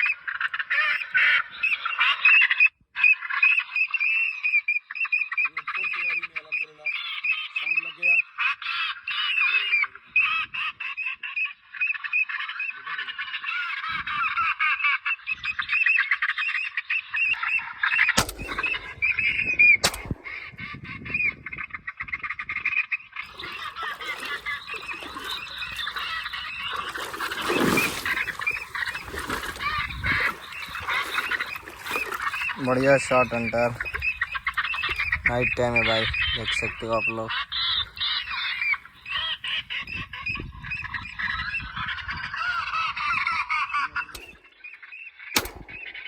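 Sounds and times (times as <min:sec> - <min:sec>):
chorus of wetland animal calls: 0:00.0 - 0:44.8
shotgun shots: 0:18.2 - 0:20.6, 0:45.4 - 0:46.0.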